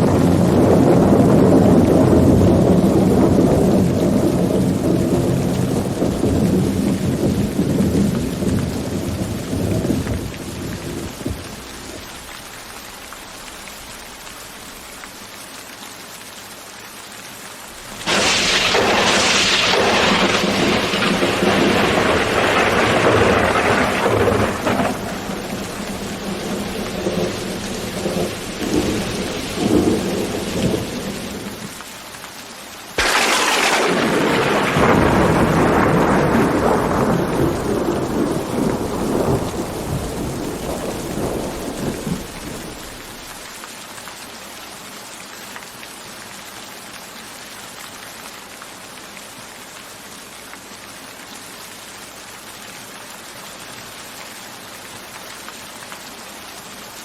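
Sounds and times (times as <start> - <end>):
sharp thunderclap: 0.0 - 11.6, 17.8 - 31.7, 33.0 - 43.2
low rumble of thunder: 0.0 - 12.1, 17.8 - 31.7, 33.0 - 43.4
rain falling steadily: 0.0 - 57.0.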